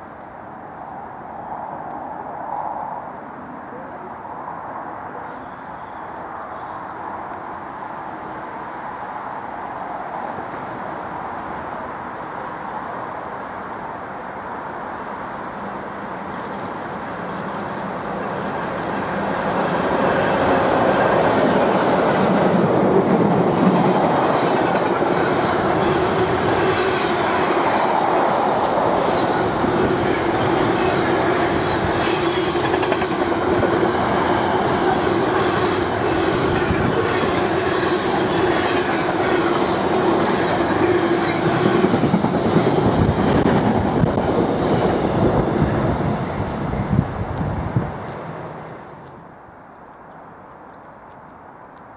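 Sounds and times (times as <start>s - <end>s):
freight train passing: 0.0s - 49.5s.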